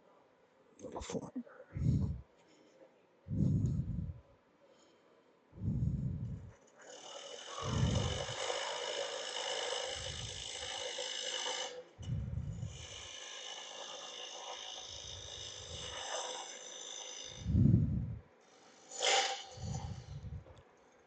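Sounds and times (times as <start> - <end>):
gouge scraping wood on lathe: 6.8 - 17.6.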